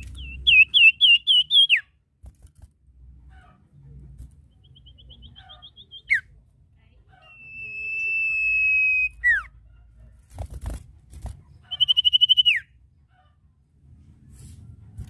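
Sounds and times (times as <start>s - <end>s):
bird whistling call: 7.3s - 9.5s, 11.7s - 12.7s.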